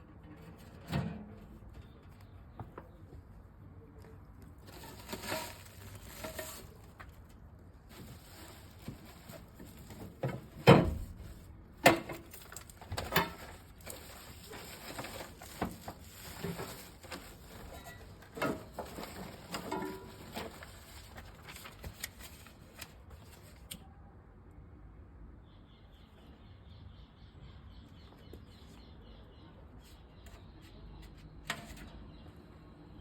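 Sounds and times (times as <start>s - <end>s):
camp stove parts knocking: 11.8s - 13.5s.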